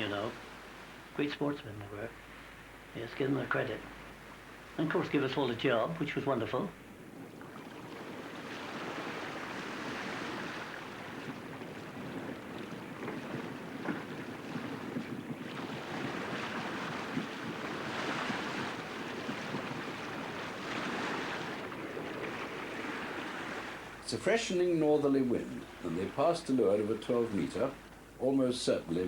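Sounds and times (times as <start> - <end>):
sea rushing: 0.0 - 29.0
wind: 0.0 - 29.0.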